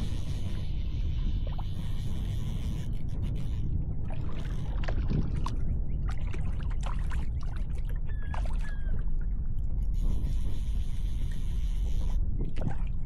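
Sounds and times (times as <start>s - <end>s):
water lapping against kayak hull: 0.0s - 2.2s, 2.9s - 9.7s, 12.2s - 13.0s
wind buffeting microphone: 0.0s - 13.0s.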